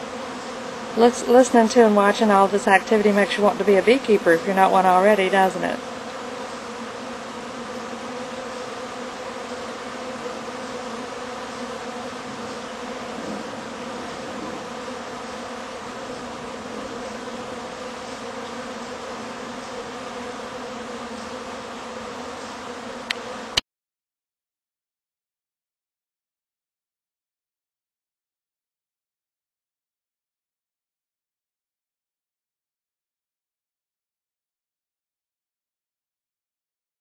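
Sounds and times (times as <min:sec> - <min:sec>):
bees buzzing: 0:00.0 - 0:23.6.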